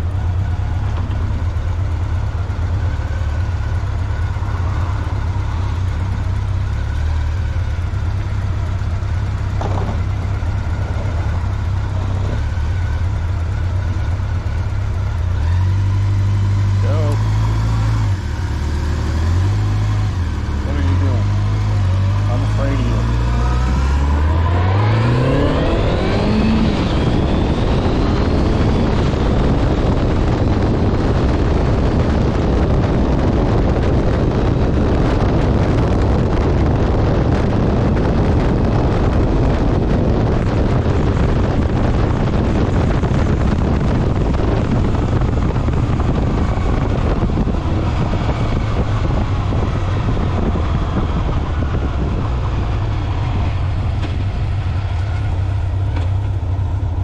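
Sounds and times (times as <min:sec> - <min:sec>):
motorcycle engine revving: 0:00.0 - 0:57.0
wind rush: 0:17.5 - 0:57.0.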